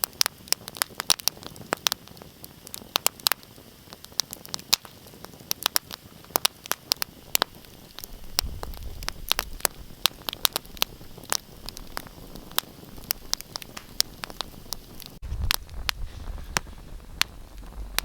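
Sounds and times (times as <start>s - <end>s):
wood fire crackling: 0.0s - 18.0s
low rumble: 15.2s - 18.0s.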